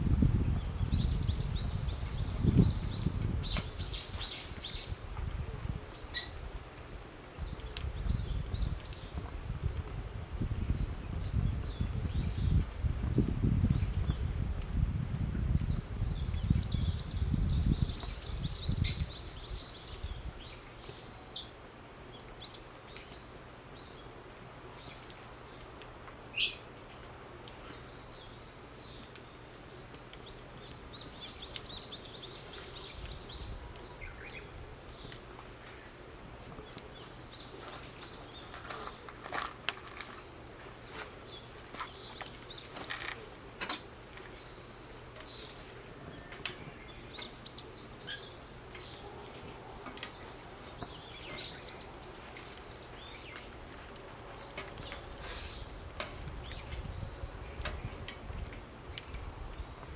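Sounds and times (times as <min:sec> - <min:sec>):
small birds chirping: 0:00.0 - 0:05.0, 0:05.9 - 0:06.4, 0:15.4 - 0:25.7, 0:26.3 - 0:59.8
wood fire crackling and popping: 0:34.7 - 0:59.9.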